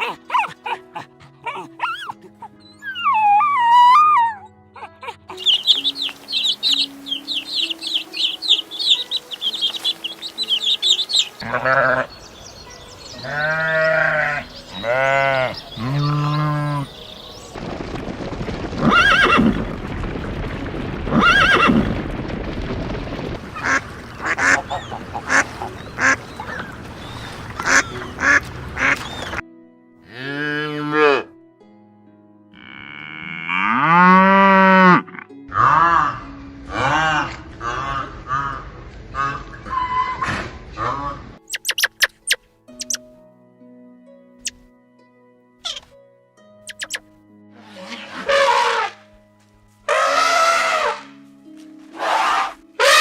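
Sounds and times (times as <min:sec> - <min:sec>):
background music: 0:00.0 - 0:53.0
repeated animal calls: 0:01.4 - 0:12.3, 0:13.2 - 0:17.0, 0:46.7 - 0:47.0, 0:47.6 - 0:49.0, 0:49.9 - 0:51.1, 0:51.9 - 0:53.0
loud arching animal cries: 0:02.9 - 0:12.2, 0:13.2 - 0:16.9, 0:47.8 - 0:49.0, 0:49.9 - 0:51.1, 0:52.0 - 0:53.0
rapid high chirping: 0:05.4 - 0:11.4, 0:41.5 - 0:43.0, 0:46.7 - 0:47.0.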